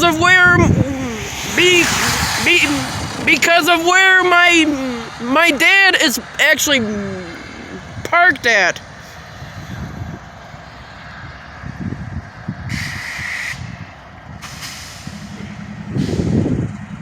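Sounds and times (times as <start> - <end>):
low rumble of heavy vehicles: 0.0 - 17.0
air brakes hissing: 12.7 - 13.8, 14.4 - 17.0.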